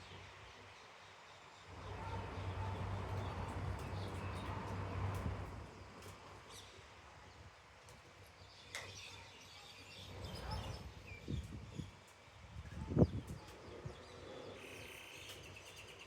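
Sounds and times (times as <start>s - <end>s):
low rumbling background noise: 0.0s - 8.7s.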